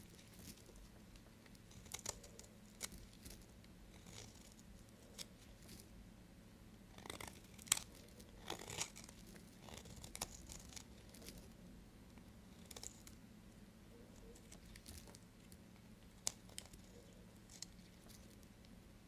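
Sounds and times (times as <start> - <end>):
knife cutting soap: 1.5 - 5.4, 6.9 - 11.4.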